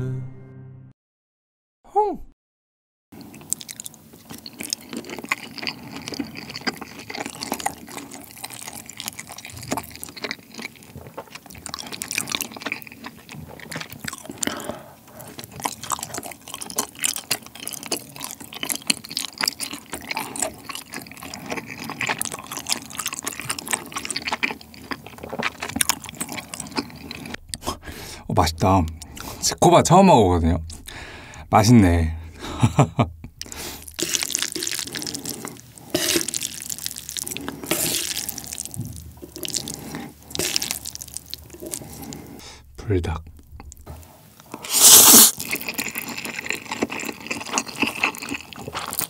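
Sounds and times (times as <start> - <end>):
wet chewing and smacking: 3.2 - 29.7, 30.6 - 31.5, 32.2 - 49.0.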